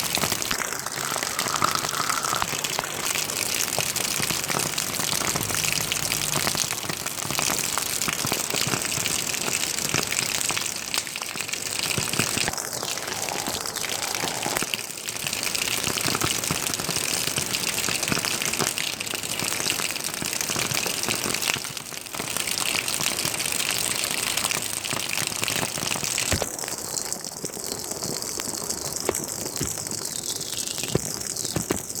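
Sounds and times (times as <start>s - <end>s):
water running steadily: 0.0s - 14.6s.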